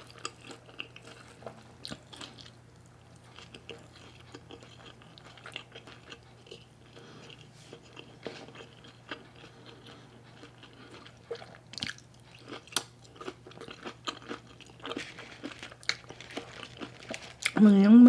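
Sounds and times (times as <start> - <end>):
person chewing with wet mouth sounds: 0.0 - 17.8
small crunches and clicks: 11.8 - 17.6.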